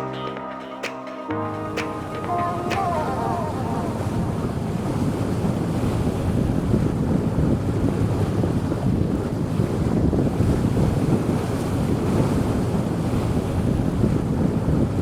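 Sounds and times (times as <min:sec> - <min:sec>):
wind buffeting microphone: 0:02.1 - 0:15.0.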